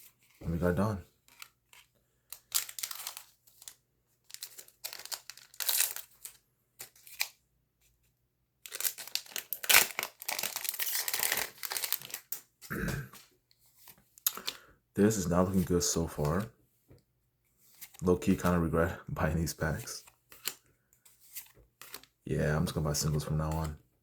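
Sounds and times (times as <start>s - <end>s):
foil wrapper crinkling: 1.2s - 7.4s, 8.6s - 12.5s.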